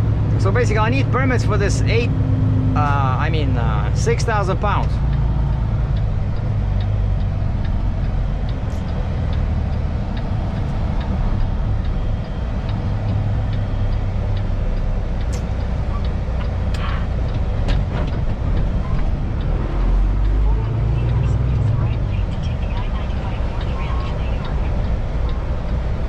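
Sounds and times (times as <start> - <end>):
truck diesel engine drone: 0.0 - 26.0
light ticks: 4.7 - 26.0
sharp clicks: 5.1 - 25.8.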